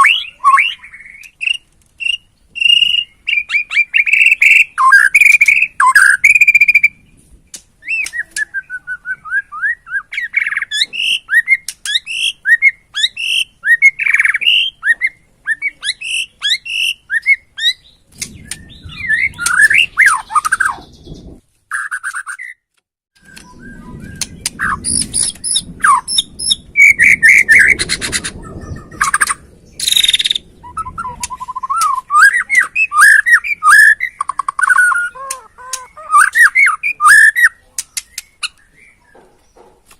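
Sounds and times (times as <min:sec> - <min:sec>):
songbird singing whistled notes: 0:00.0 - 0:07.2, 0:07.8 - 0:39.7
low rumbling noise: 0:17.8 - 0:21.5, 0:23.2 - 0:34.3.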